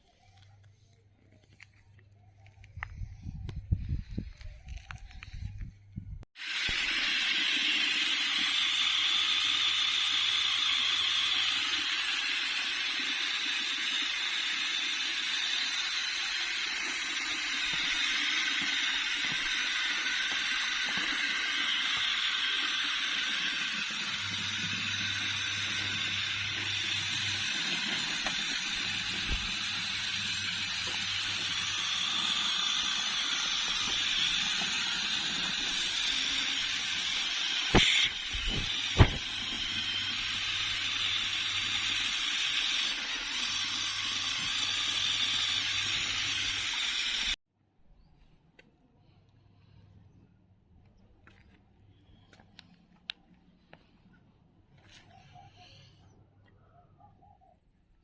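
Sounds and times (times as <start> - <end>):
small electric motor whirring: 6.4 - 47.4.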